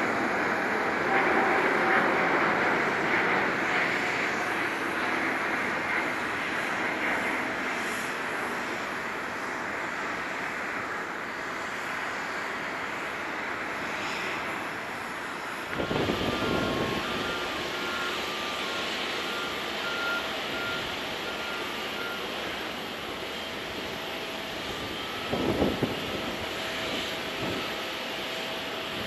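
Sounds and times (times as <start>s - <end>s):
jet engine: 0.0s - 29.0s.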